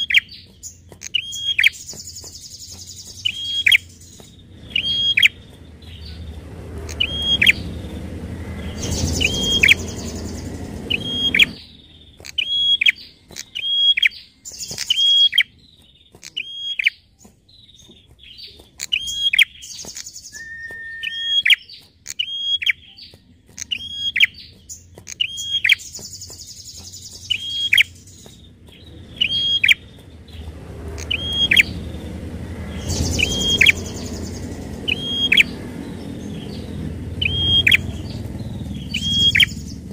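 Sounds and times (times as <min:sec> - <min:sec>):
bird calling high notes: 0:01.0 - 0:15.5, 0:18.8 - 0:23.0, 0:25.1 - 0:28.3, 0:29.2 - 0:29.8, 0:30.9 - 0:32.1, 0:32.7 - 0:35.6, 0:36.8 - 0:39.7
low rumble: 0:03.8 - 0:12.1, 0:28.5 - 0:39.9.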